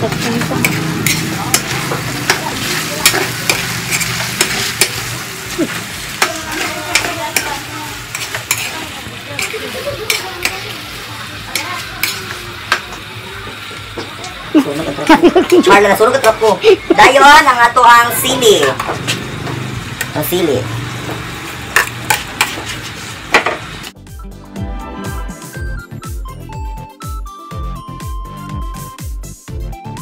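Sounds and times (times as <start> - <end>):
pork sizzling in a wok: 0.0 - 24.0
metal ladle scraping a pan: 0.2 - 10.6.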